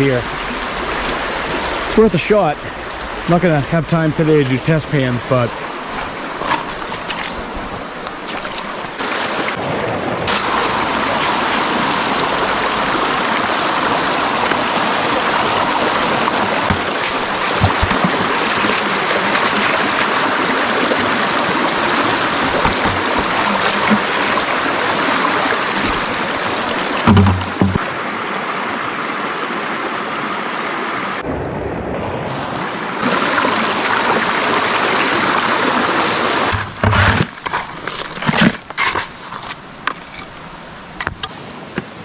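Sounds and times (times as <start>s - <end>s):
river rushing: 0.0s - 31.2s, 32.3s - 42.0s
faint knocks: 22.4s - 24.2s, 27.0s - 27.8s.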